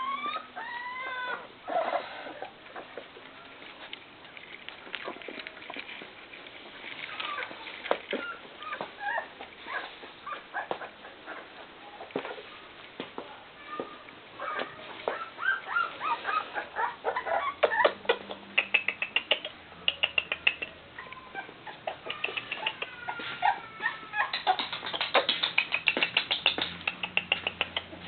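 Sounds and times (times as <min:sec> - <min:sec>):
puppies whining and yipping: 0:00.0 - 0:03.0, 0:07.0 - 0:12.5, 0:14.4 - 0:18.4, 0:20.2 - 0:25.9.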